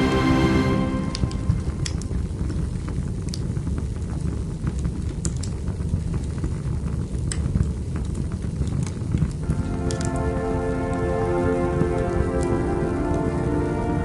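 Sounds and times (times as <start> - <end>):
soft instrumental music: 0.0 - 2.7, 9.4 - 14.0.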